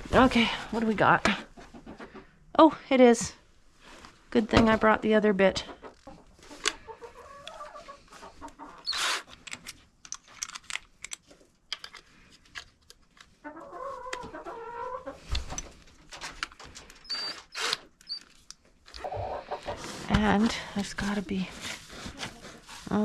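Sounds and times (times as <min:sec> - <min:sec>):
chickens clucking: 0:05.6 - 0:08.9, 0:13.4 - 0:15.4, 0:19.0 - 0:20.1.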